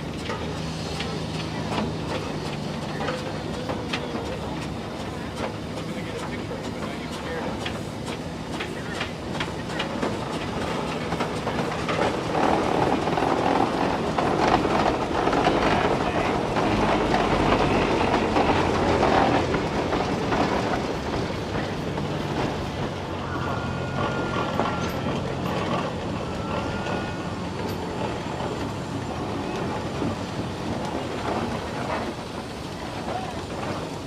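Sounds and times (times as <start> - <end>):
steam traction engine clatter: 0.0 - 34.0.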